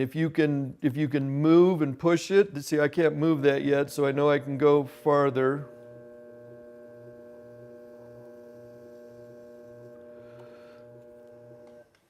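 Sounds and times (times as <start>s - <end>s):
pottery wheel motor humming: 4.4s - 11.9s.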